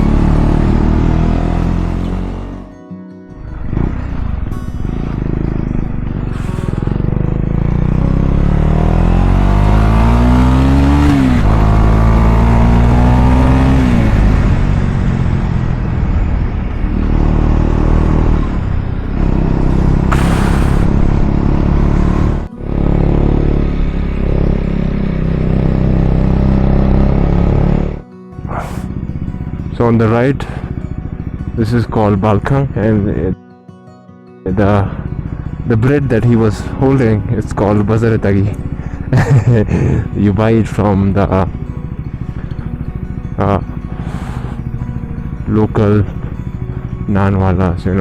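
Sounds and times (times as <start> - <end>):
wind and road noise: 0.0 - 2.7, 3.4 - 32.8
motorcycle engine accelerating: 0.0 - 33.4, 34.5 - 48.0.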